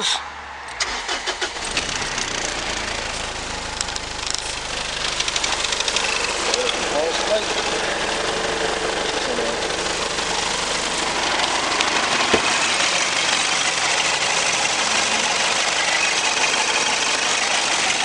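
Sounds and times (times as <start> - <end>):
diesel engine idling: 0.7 - 18.0.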